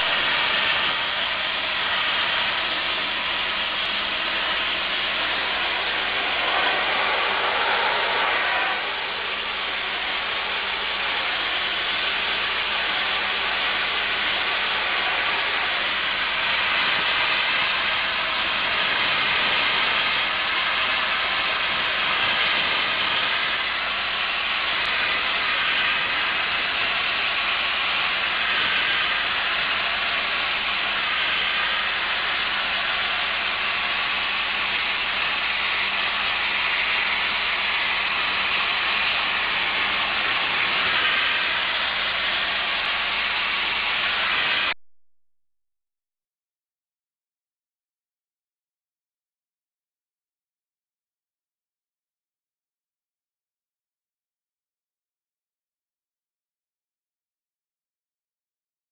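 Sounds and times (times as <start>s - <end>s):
blasting nozzle spraying hiss: 0.0s - 44.7s.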